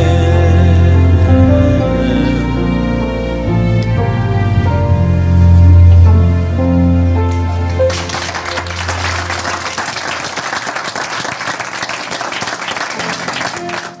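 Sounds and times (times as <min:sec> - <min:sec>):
piano chord ringing: 0:00.0 - 0:10.1
audience applause: 0:07.8 - 0:14.0.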